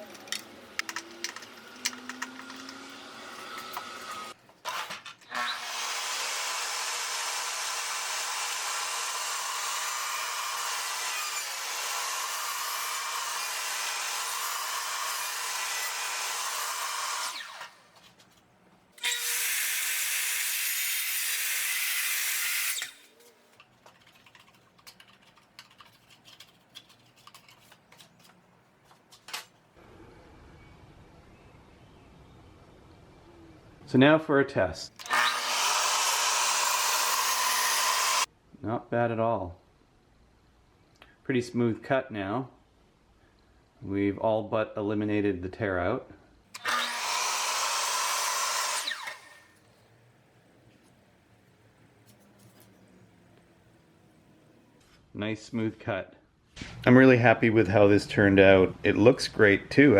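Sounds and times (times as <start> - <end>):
power tool running: 0.8 - 4.4, 5.3 - 17.9, 19.0 - 23.1, 35.0 - 38.3, 46.6 - 49.6.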